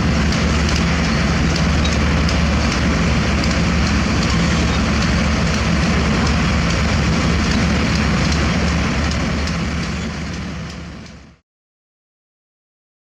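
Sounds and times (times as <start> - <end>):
heavy machinery diesel engine droning: 0.0 - 11.4.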